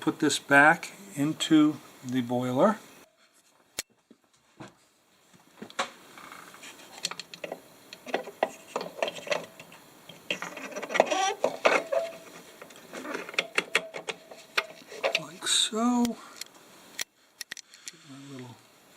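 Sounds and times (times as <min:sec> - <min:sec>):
metal clicks knocks and scraping: 0:06.8 - 0:15.4.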